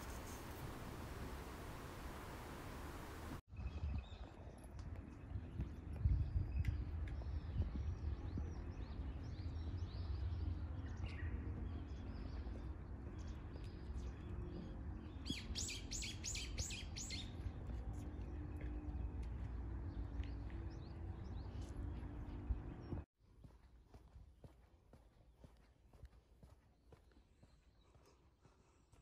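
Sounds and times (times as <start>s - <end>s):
birds chirping: 6.5s - 23.0s.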